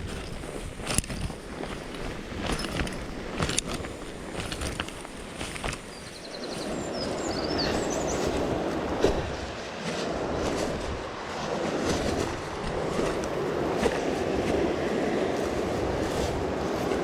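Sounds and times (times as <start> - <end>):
bird chirps: 5.9 - 8.4.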